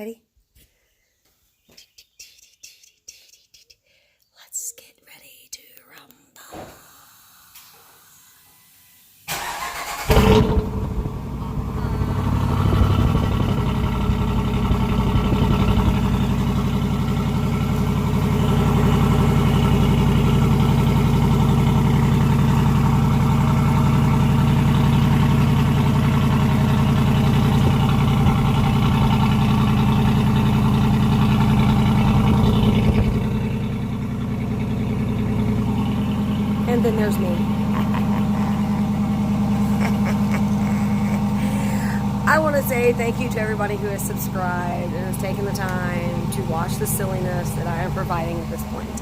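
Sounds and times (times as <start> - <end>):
engine starting and idling: 9.2 - 49.0
starter motor cranking: 9.3 - 11.2.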